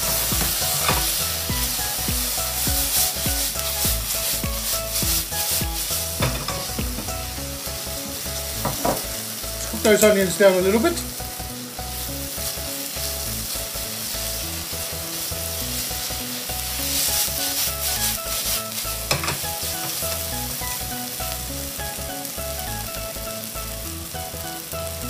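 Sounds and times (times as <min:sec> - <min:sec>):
onions sizzling in oil: 0:00.0 - 0:25.0
pan knock: 0:06.2 - 0:07.2, 0:08.6 - 0:09.2.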